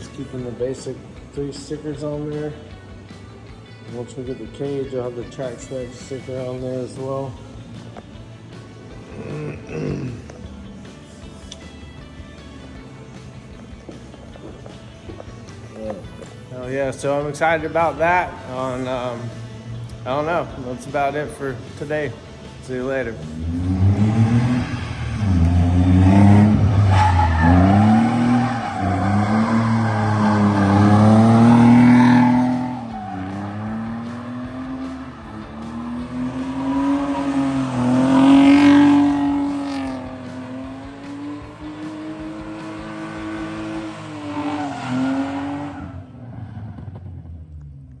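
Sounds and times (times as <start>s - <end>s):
tires squealing: 15.2s - 47.6s
drift car engine revving: 23.2s - 47.8s.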